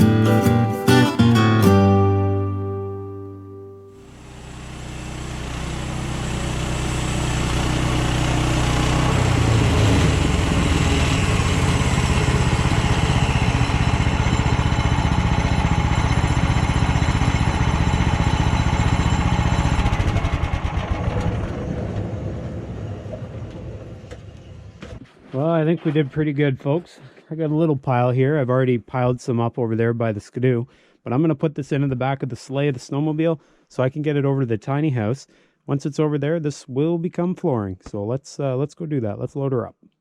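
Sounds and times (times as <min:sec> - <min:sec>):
sawmill engine running: 0:04.0 - 0:25.0.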